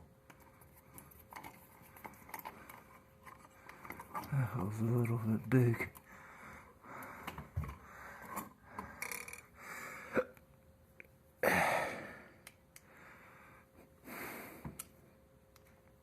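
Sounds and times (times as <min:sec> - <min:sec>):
person breathing out hard: 0:11.4 - 0:14.7.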